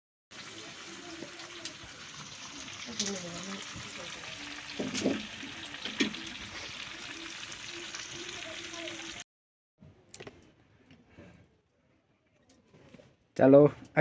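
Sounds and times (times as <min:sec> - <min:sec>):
food sizzling in oil: 0:00.3 - 0:09.2.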